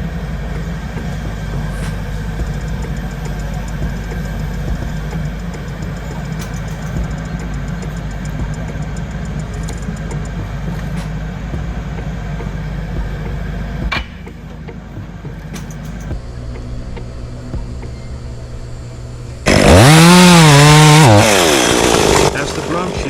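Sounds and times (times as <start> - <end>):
engine rumbling: 0.0 - 23.0
sharp click: 5.2 - 10.4, 15.5 - 16.2.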